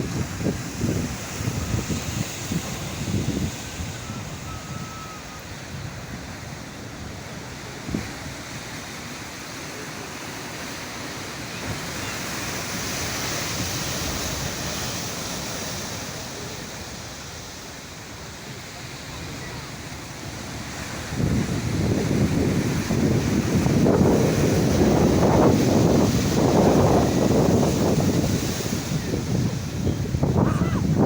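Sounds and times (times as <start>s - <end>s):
wind buffeting microphone: 0.0s - 8.8s, 20.2s - 31.0s
sea waves breaking on shore: 0.0s - 31.0s.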